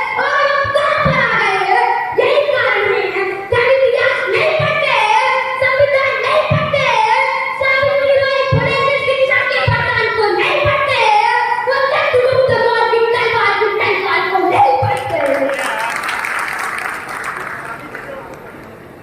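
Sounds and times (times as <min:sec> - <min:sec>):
child singing: 0:00.0 - 0:15.2.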